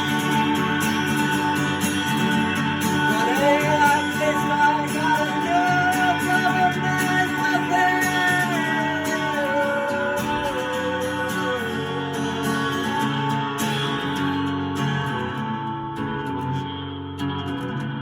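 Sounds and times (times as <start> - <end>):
person singing: 0.0 - 14.2
acoustic guitar: 0.0 - 18.0.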